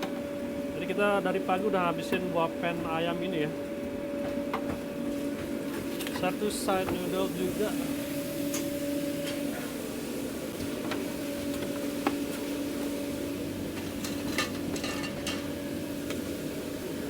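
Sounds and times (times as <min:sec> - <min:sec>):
machine hum: 0:00.0 - 0:17.0
utensils and containers clattering: 0:13.7 - 0:15.6.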